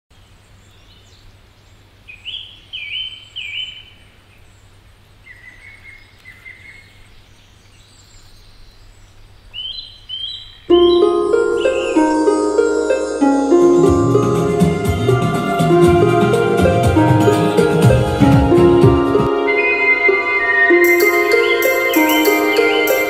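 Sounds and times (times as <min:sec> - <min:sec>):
songbird whistling: 0:09.6 - 0:12.3, 0:18.2 - 0:23.0
loud music: 0:10.7 - 0:23.0.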